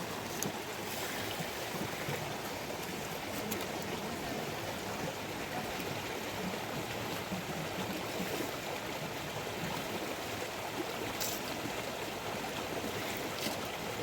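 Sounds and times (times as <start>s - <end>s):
rushing water hiss: 0.0s - 4.9s, 7.9s - 14.0s.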